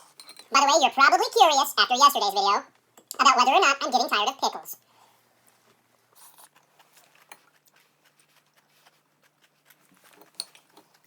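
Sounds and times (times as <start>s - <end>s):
person chewing a pickle: 6.1s - 11.0s.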